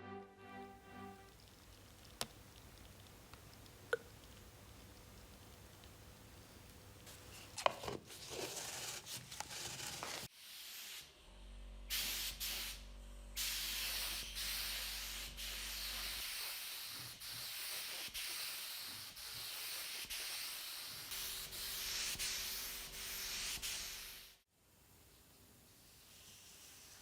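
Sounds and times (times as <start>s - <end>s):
faint steady hum: 0.9s - 7.6s.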